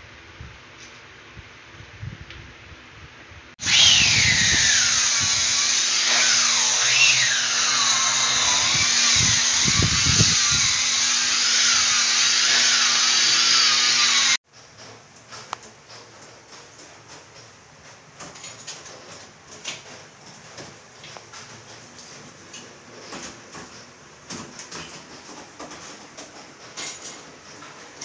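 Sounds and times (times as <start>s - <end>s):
power tool whining on stone: 3.6s - 14.4s.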